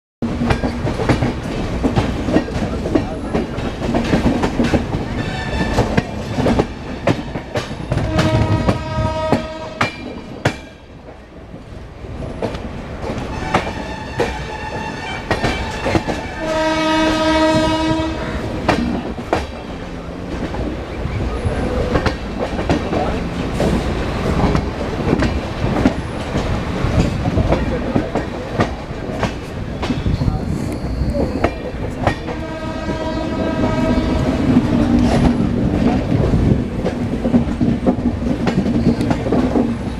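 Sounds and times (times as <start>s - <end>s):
long pitched horn blast: 8.0s - 9.8s, 16.4s - 18.3s, 32.4s - 34.4s.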